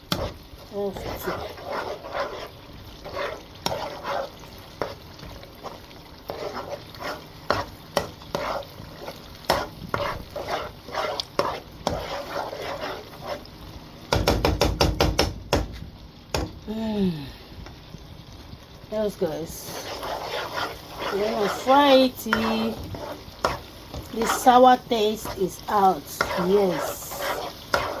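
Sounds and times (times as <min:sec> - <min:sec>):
tomato frying: 0:00.0 - 0:28.0
spoon scraping a pot: 0:00.1 - 0:13.5, 0:19.5 - 0:28.0.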